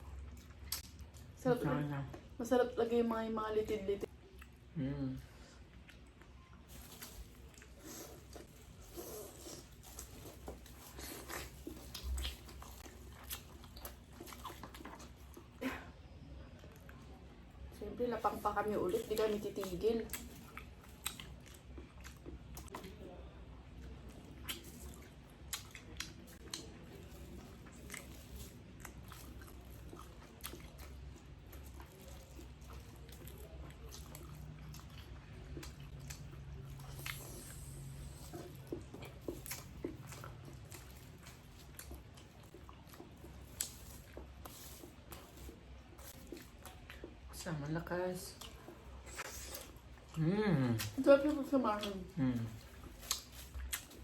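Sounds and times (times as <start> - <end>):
people chewing: 3.6 - 54.0.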